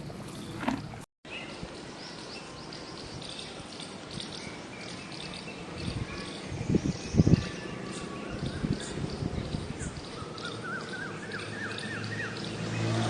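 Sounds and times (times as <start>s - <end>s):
small birds chirping: 0.0s - 1.0s.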